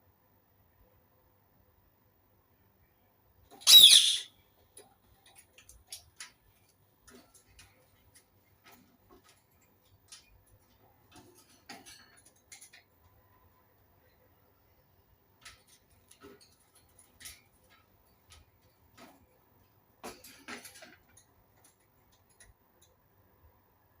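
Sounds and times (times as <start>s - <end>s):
parakeet screeching: 3.6s - 4.3s
soft clicks and ticks: 15.3s - 23.6s.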